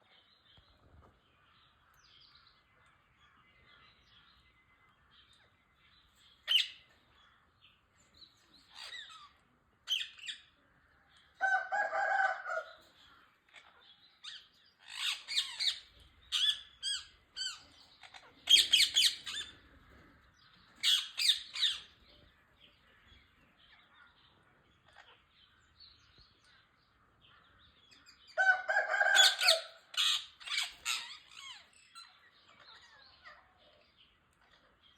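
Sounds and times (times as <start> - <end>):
parakeets chattering: 6.3 - 7.8, 8.6 - 10.6, 13.0 - 28.4, 29.3 - 34.9
parakeets screeching: 6.4 - 6.9, 8.6 - 10.5, 13.5 - 19.6, 20.8 - 22.0, 28.8 - 33.6.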